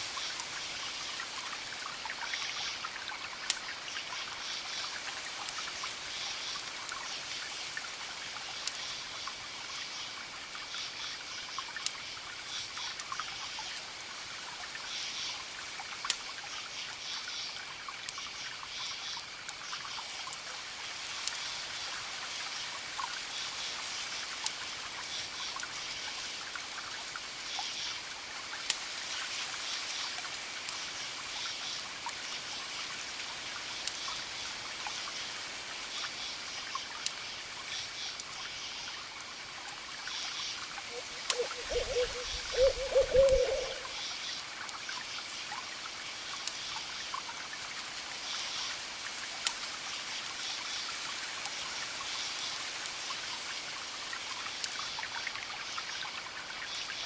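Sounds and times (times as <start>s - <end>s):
campfire crackling and popping: 8.6s - 8.8s, 11.8s - 12.0s, 21.1s - 21.4s, 33.8s - 34.1s, 46.2s - 46.6s
crickets chirping: 40.0s - 44.4s
distant waves hissing: 40.9s - 44.0s
low hoots: 40.9s - 44.0s.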